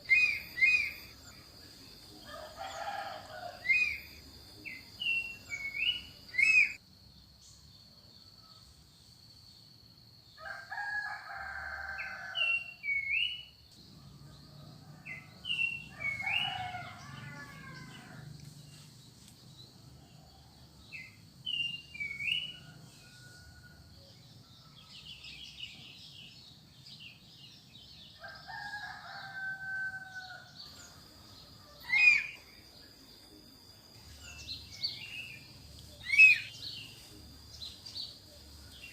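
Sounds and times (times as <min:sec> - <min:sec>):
small birds chirping: 0:00.0 - 0:06.8, 0:30.2 - 0:38.9
rooster crowing: 0:02.2 - 0:04.0, 0:10.4 - 0:12.8, 0:14.6 - 0:18.4, 0:28.2 - 0:30.6.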